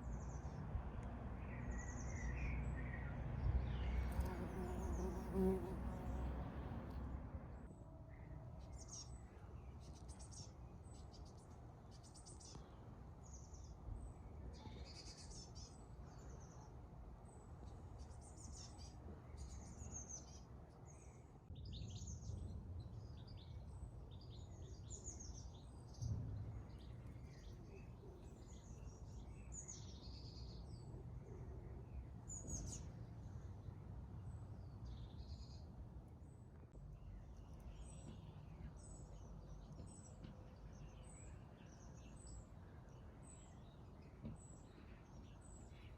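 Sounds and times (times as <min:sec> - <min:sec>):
small birds singing and chirping: 0:08.1 - 0:45.9.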